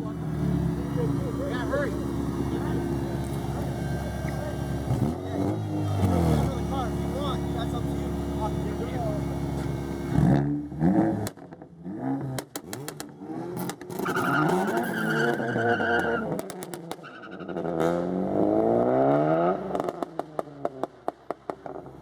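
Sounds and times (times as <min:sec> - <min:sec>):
car engines revving: 0:00.0 - 0:22.0
tire squeal: 0:13.9 - 0:17.8.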